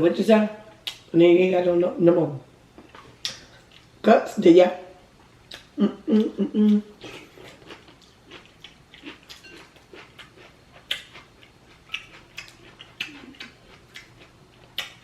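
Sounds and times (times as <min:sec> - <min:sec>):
wet chewing and lip smacking: 0:05.4 - 0:15.0.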